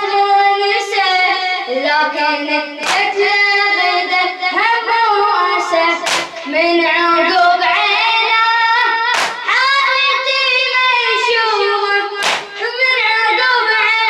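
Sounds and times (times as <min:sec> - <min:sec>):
boy singing unaccompanied: 0:00.0 - 0:14.0
group beating their chests: 0:02.8 - 0:03.2, 0:06.0 - 0:06.5, 0:09.1 - 0:09.6, 0:12.2 - 0:12.7.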